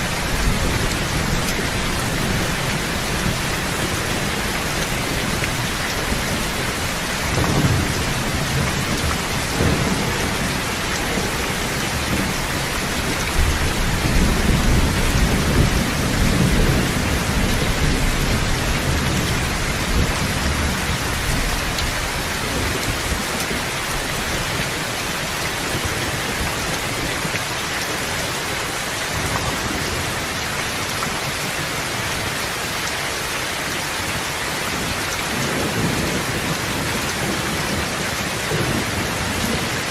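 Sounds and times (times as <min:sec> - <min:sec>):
rain falling: 0:00.0 - 0:39.9
rumbling thunder: 0:00.1 - 0:24.7.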